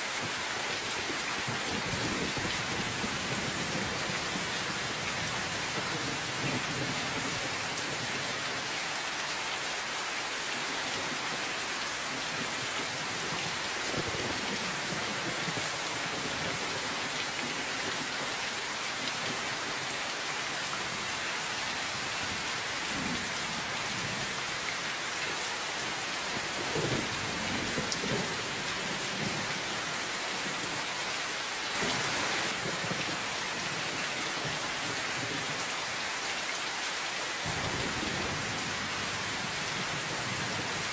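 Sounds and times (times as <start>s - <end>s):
heavy rain falling: 0.0s - 40.9s
thunder rumbling: 37.4s - 40.7s.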